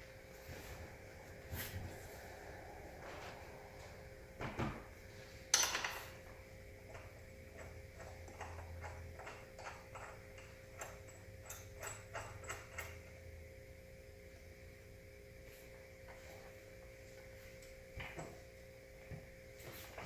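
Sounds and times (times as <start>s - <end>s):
light irregular ticks of bolts: 6.9s - 13.2s.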